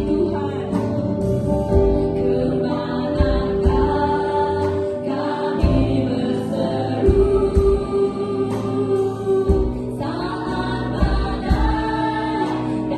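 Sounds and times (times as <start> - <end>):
sustained keyboard chords: 0.0 - 12.9
voices singing slowly: 0.0 - 12.9
steady low drum beat: 3.2 - 4.3, 7.0 - 10.1, 11.0 - 12.4.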